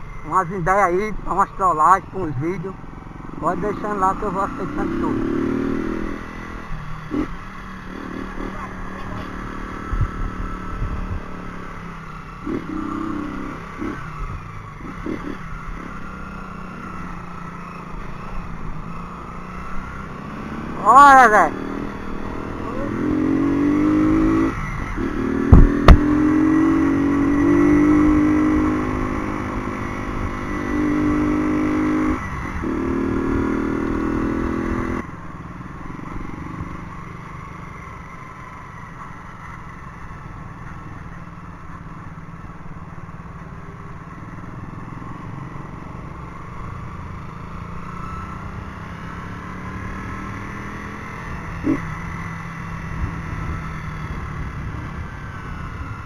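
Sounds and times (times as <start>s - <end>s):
motorcycle engine revving: 0.0s - 56.0s
sharp knocks: 25.4s - 26.2s.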